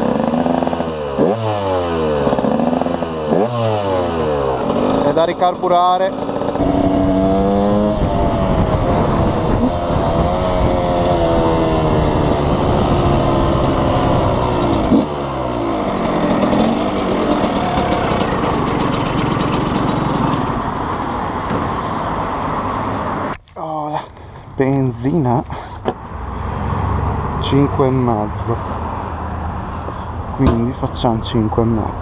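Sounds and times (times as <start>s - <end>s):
two-stroke motorcycle engine revving: 0.0s - 21.0s.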